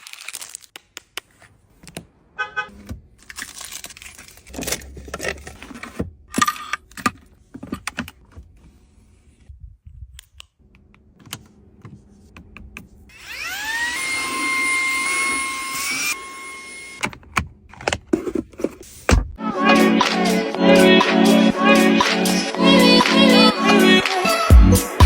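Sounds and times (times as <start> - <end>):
packaging rustling: 0.0 - 0.8, 3.2 - 5.9.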